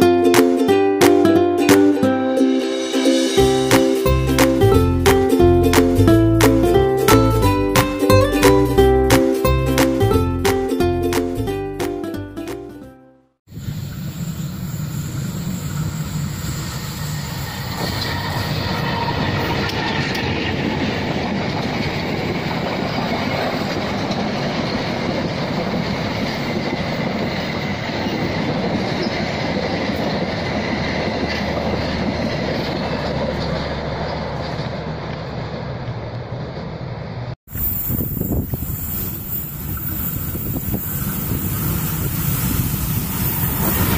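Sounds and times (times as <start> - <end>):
train wheels rumbling on track: 13.5 - 43.9
faint high wheel squeal: 13.6 - 20.4, 37.5 - 43.9.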